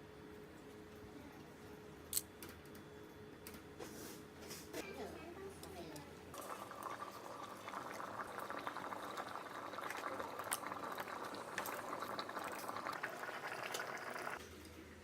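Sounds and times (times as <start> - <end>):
broth boiling in a kettle: 6.3 - 14.4.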